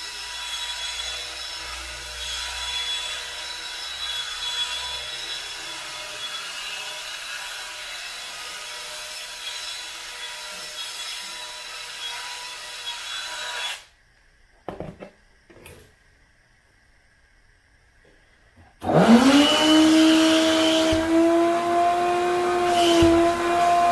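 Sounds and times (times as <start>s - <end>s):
wet vacuum cleaner running: 18.8s - 23.9s.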